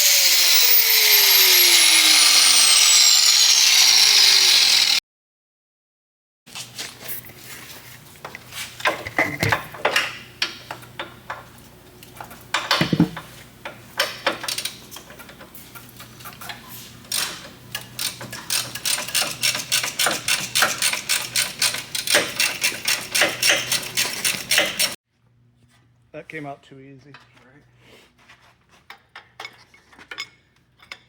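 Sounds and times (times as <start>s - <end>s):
knocks: 12.6s - 13.2s.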